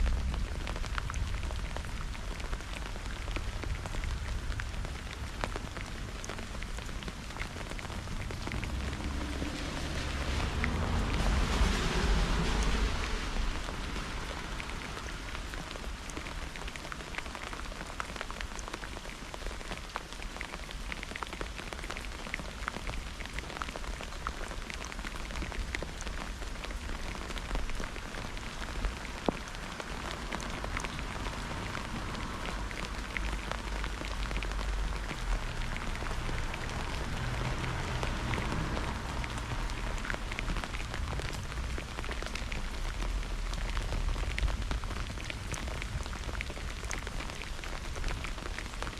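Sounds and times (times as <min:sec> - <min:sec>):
raindrops ticking close by: 0:00.0 - 0:48.9
steady rain: 0:00.0 - 0:48.9
low thunder rumble: 0:08.0 - 0:16.0.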